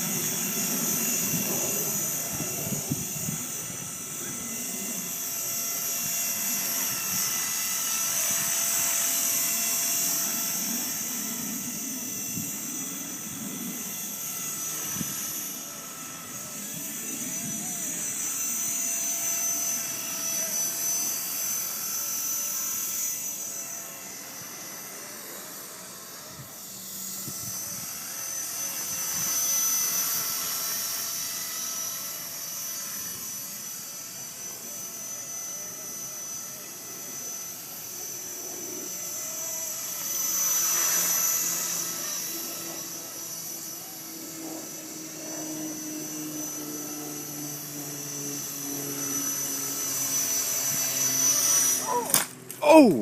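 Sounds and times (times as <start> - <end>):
rc helicopter motor whine: 0.0 - 53.0.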